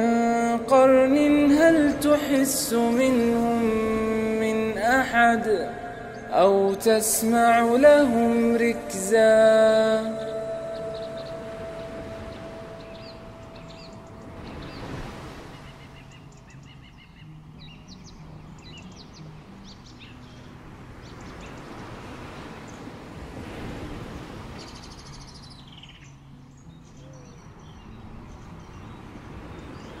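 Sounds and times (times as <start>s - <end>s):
birds chirping: 0.0s - 23.2s, 24.4s - 30.0s.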